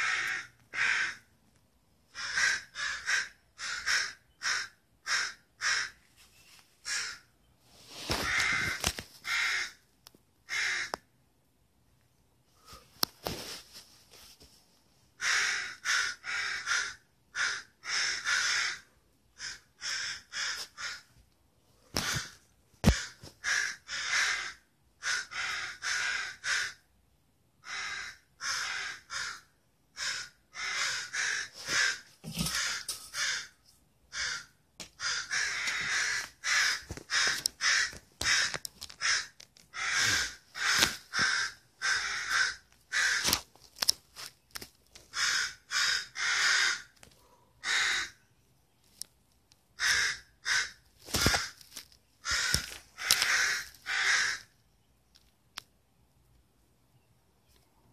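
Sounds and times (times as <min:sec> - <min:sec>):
harsh grating bird calls: 0:02.1 - 0:06.0, 0:06.8 - 0:07.4, 0:08.1 - 0:09.8, 0:15.2 - 0:21.1, 0:22.0 - 0:26.8, 0:27.6 - 0:43.3, 0:45.0 - 0:47.0, 0:47.6 - 0:48.5, 0:49.8 - 0:54.6.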